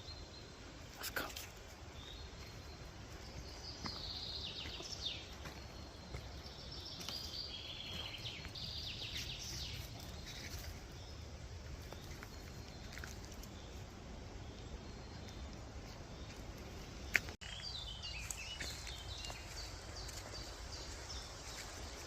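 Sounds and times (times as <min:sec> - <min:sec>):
songbird singing trills: 0:00.0 - 0:22.0.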